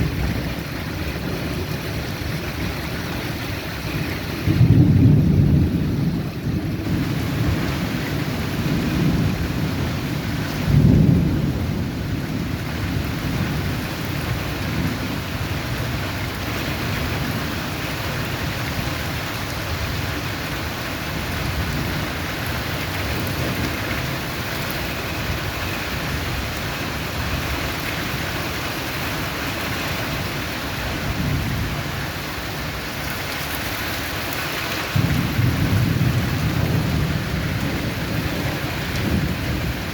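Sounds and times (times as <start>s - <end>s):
steady rain falling: 0.0s - 39.9s
low rolls of thunder: 4.1s - 18.9s, 34.8s - 39.9s.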